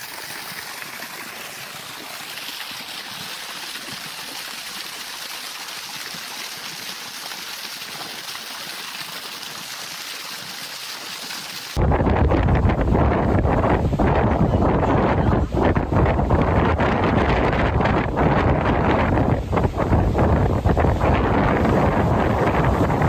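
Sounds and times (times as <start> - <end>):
water gushing from ground: 0.0 - 11.9, 16.5 - 23.0
wind buffeting microphone: 11.8 - 23.0.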